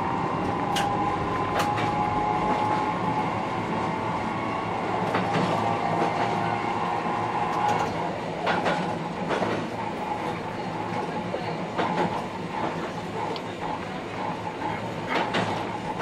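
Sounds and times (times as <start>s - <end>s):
train rolling rumble: 0.0s - 16.0s
wheels clacking over rail joints: 5.0s - 6.5s, 7.5s - 16.0s.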